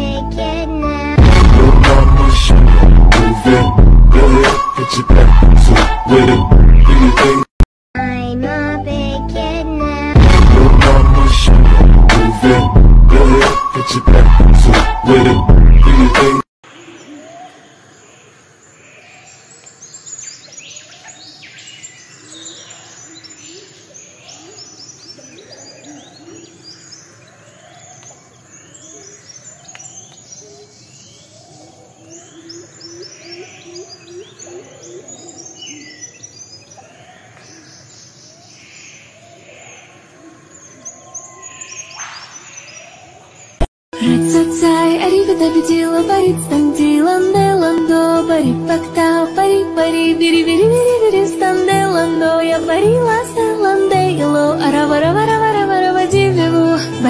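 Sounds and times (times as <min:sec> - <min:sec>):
lower repeated bird notes: 0:00.0 - 0:07.5, 0:10.7 - 0:44.7
birds chirping and twittering: 0:16.6 - 0:43.7.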